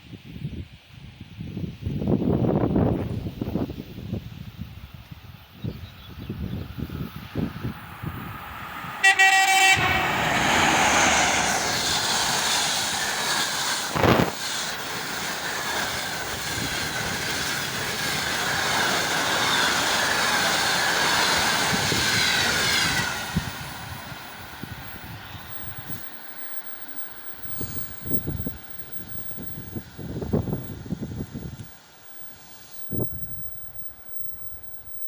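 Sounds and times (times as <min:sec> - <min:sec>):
train running on rails: 0:00.0 - 0:35.0
locomotive horn blast: 0:08.9 - 0:11.9.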